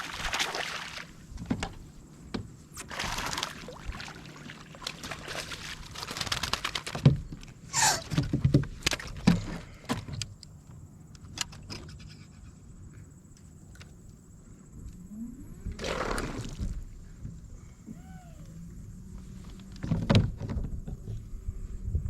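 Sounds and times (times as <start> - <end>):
fishing gear clicks and rattles: 5.8 - 7.6, 8.2 - 12.4.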